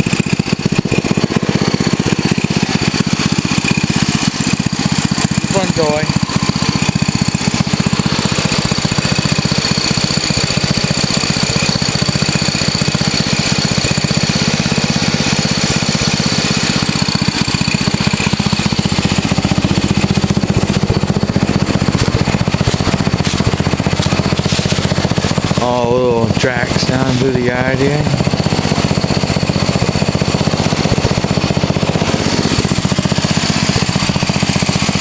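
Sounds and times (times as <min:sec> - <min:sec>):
lawn tractor engine running: 0:00.0 - 0:35.0.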